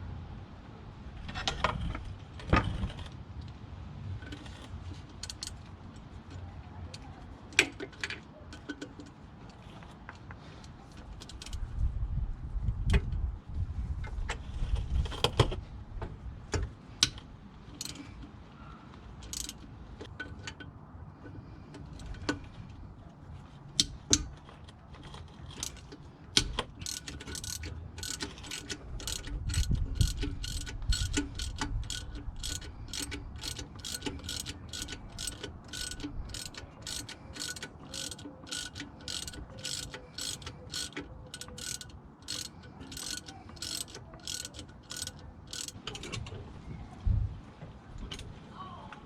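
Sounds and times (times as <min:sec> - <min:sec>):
socket ratchet clicking: 0:19.2 - 0:20.7, 0:25.0 - 0:46.1.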